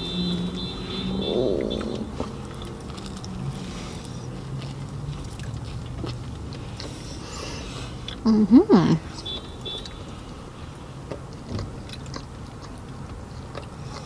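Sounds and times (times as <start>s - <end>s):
biting and chewing pastry: 2.2s - 8.3s, 9.0s - 14.0s.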